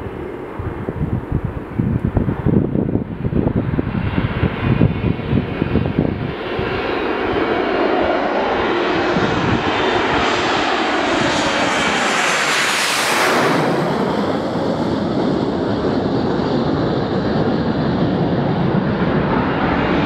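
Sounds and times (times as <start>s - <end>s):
high jet whine: 0.0s - 20.0s
jet engines roaring overhead: 0.0s - 20.0s.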